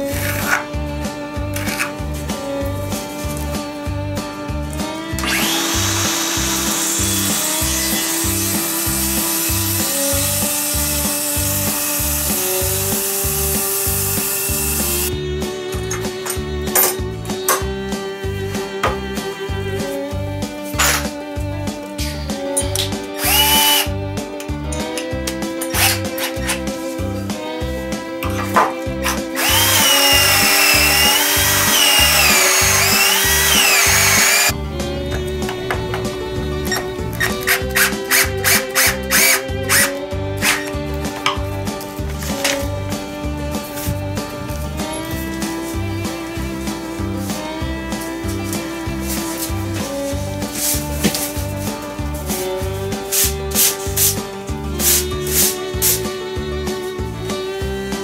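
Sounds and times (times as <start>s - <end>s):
circular saw cutting wood: 0.0s - 0.7s, 4.9s - 15.1s, 23.2s - 23.9s, 25.6s - 26.7s, 28.3s - 40.8s
background music with steady beat: 0.0s - 58.0s
cordless drill boring into wood: 5.2s - 15.1s, 23.2s - 23.9s, 25.7s - 26.3s, 29.1s - 34.5s, 37.2s - 40.7s.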